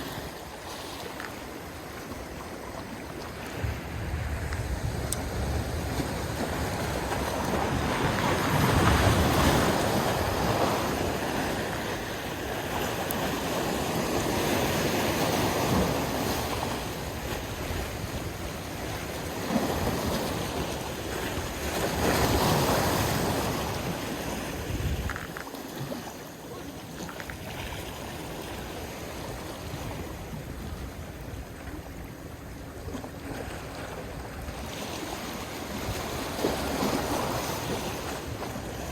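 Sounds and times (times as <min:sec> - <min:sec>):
waves washing in: 0:00.0 - 0:38.9
wind noise on microphone: 0:03.2 - 0:26.0.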